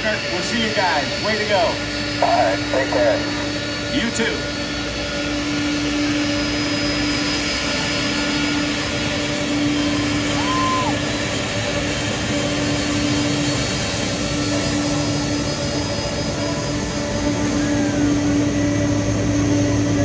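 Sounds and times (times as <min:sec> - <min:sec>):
aircraft engines droning: 0:00.0 - 0:20.0.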